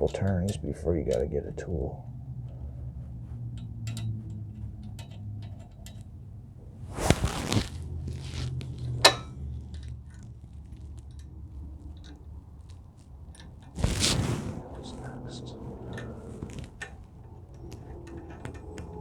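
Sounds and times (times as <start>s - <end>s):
scraping rattle: 0.0s - 19.0s
steady low hum: 0.0s - 19.0s
small metal hardware clinking: 3.6s - 6.4s, 8.8s - 13.8s
sharp metallic clack: 8.9s - 9.4s.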